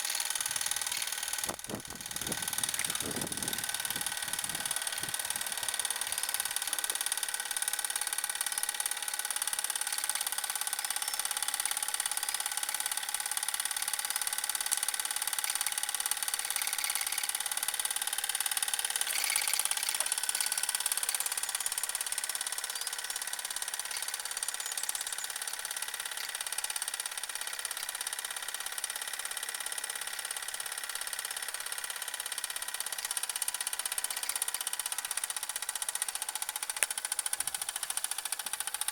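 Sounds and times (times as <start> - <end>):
model steam engine running: 0.0 - 38.9.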